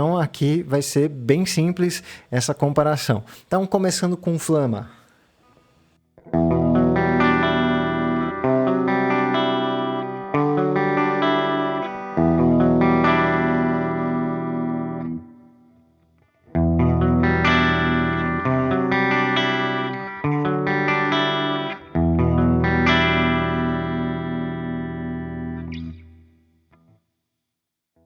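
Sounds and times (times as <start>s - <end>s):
clean electric guitar chords: 6.2s - 15.9s, 16.5s - 26.4s.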